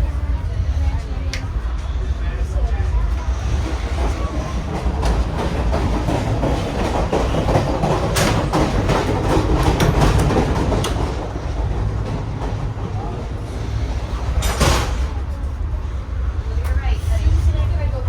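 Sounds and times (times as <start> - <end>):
train rumbling on rails: 0.0 - 18.0
wheel clacks over rail joints: 4.7 - 13.1.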